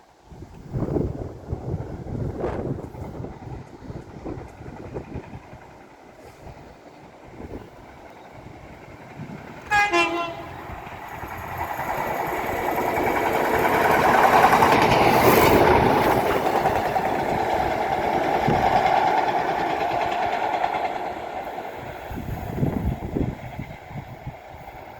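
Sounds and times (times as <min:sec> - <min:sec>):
train wheels rumbling past: 0:00.7 - 0:24.9
train horn blast: 0:09.6 - 0:10.8.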